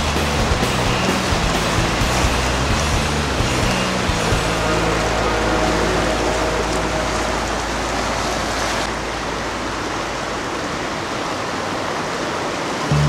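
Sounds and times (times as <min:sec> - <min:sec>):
whitewater rushing through rapid: 0:00.0 - 0:13.0
low rumble: 0:01.6 - 0:10.9.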